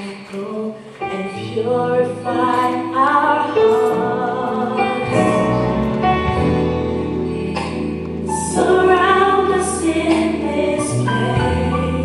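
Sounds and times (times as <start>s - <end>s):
instrumental backing with bass: 1.4s - 12.0s
choir singing long notes: 3.5s - 12.0s.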